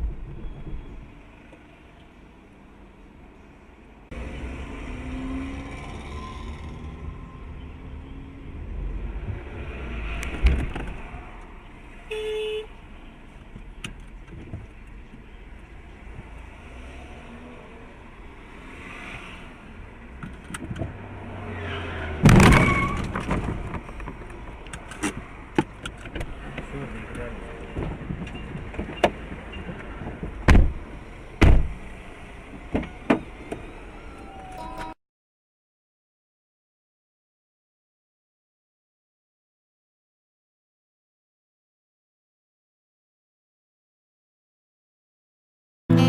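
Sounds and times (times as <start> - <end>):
traffic engine and road rumble: 0.0 - 35.0
vehicle crash impact: 22.1 - 24.2.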